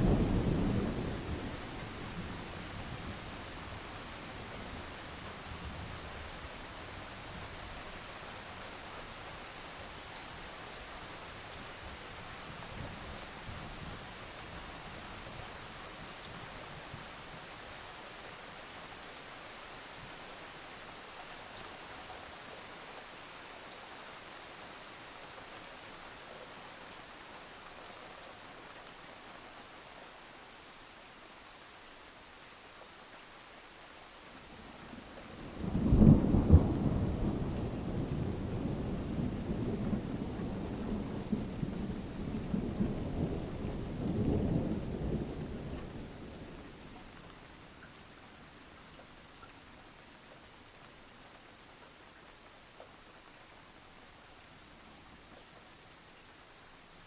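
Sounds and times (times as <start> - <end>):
loud crackling thunderclap: 0.0 - 3.2, 35.4 - 46.7
steady rain hiss: 0.0 - 57.0.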